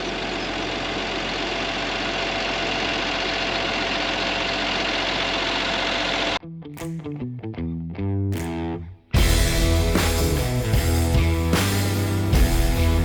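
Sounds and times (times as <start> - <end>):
engine idling: 0.0 - 6.4, 9.2 - 13.0
music: 6.4 - 13.0.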